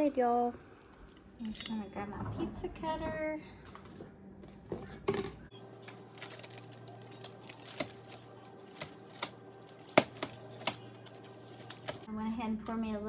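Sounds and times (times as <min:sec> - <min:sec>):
pizza cutter slicing bread on pan: 0:07.5 - 0:10.9.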